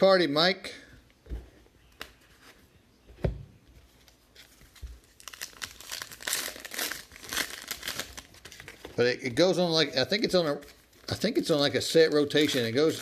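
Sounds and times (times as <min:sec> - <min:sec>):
foil wrappers crinkling and tearing: 0:05.0 - 0:09.0, 0:12.1 - 0:13.0.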